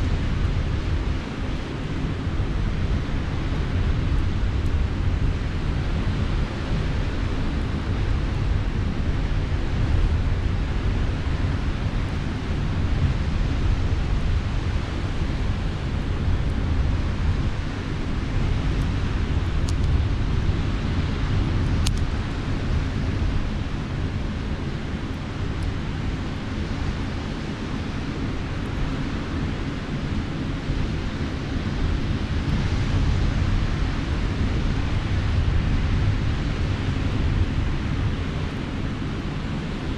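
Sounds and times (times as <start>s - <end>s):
campfire crackles: 7.8s - 29.5s.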